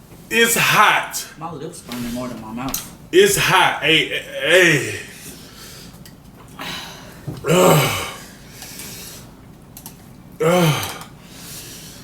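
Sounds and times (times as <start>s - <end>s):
person crying ooh: 3.3s - 5.1s.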